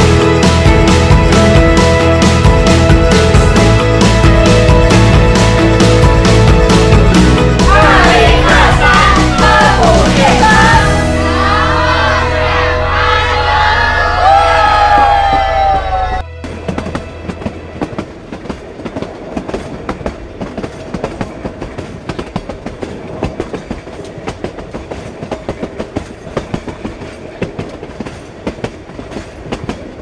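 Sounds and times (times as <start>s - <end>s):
train wheels clattering over rails: 16.4s - 30.0s.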